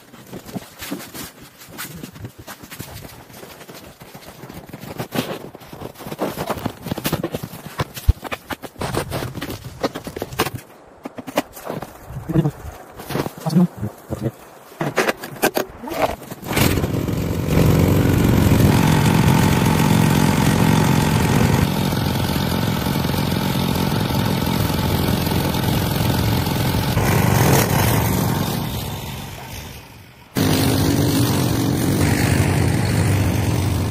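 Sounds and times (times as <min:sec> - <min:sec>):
vehicle engine running: 0:16.5 - 0:29.7, 0:30.4 - 0:33.9
engine-like drone with low hum: 0:16.5 - 0:33.9.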